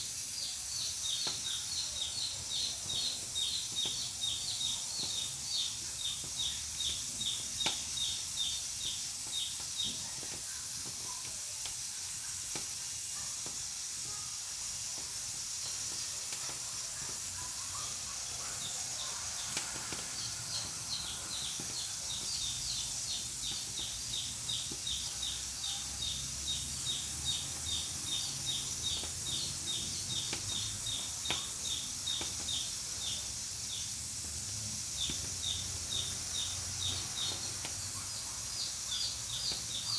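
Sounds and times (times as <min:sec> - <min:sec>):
pressure cooker hissing steam: 0:00.0 - 0:39.9
bird chirping: 0:16.9 - 0:39.9.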